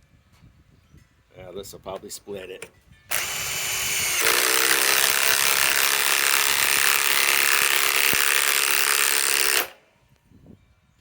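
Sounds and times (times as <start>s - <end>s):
impact wrench hammering: 3.1s - 9.8s.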